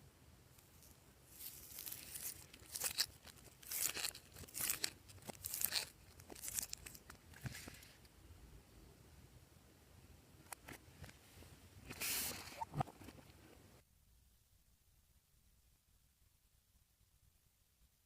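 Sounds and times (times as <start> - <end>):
slime squeezed crackling: 1.3 - 7.2.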